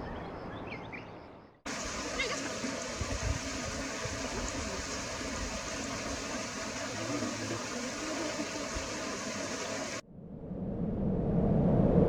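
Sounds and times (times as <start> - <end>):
stream water rushing: 1.7 - 10.0.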